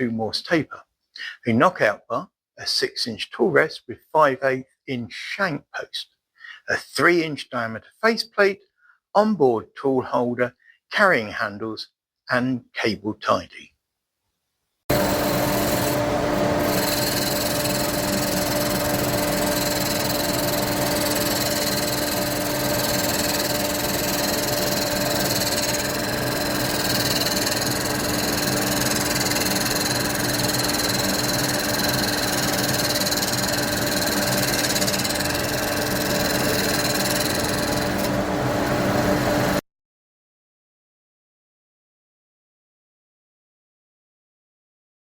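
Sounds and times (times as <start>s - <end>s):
tool scraping spinning wood: 14.9s - 39.6s
woodturning lathe humming: 14.9s - 39.6s.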